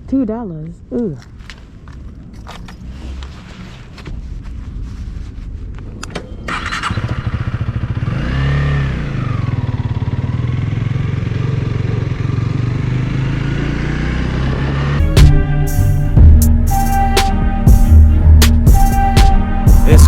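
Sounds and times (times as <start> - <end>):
motorcycle engine revving and idling: 6.4 - 15.2.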